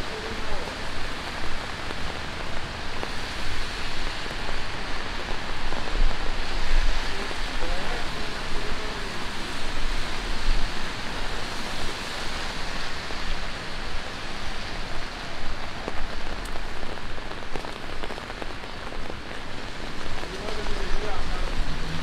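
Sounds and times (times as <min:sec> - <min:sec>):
rain falling on pavement: 0:00.0 - 0:22.0
sharp raindrop clicks: 0:00.1 - 0:09.0, 0:14.7 - 0:22.0.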